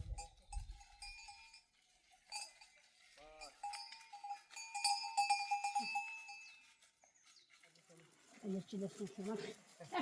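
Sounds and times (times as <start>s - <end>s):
livestock bells clinking: 0.0s - 7.1s.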